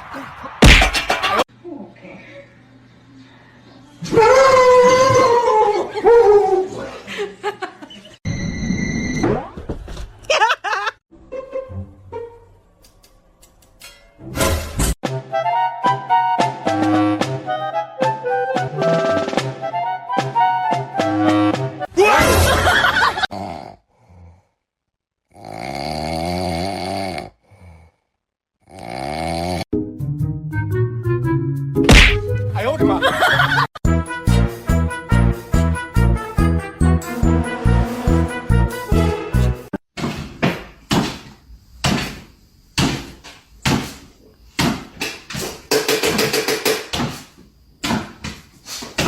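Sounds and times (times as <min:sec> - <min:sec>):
loud snoring: 0:23.3 - 0:24.6, 0:25.3 - 0:29.7.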